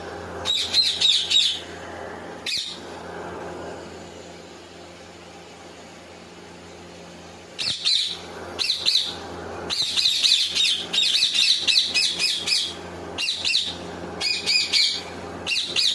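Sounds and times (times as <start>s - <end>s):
faint steady hum: 0.0s - 15.9s
parakeet chirping: 0.4s - 1.7s, 2.4s - 2.8s, 7.6s - 15.9s.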